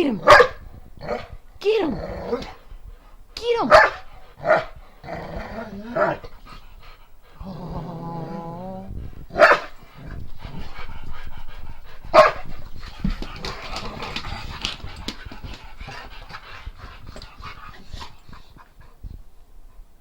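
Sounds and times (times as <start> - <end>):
dog barking or yelping: 0.0 - 0.6, 3.5 - 4.7, 9.4 - 9.7, 12.2 - 12.4
dog panting: 0.0 - 5.0, 5.8 - 8.4, 9.0 - 20.0.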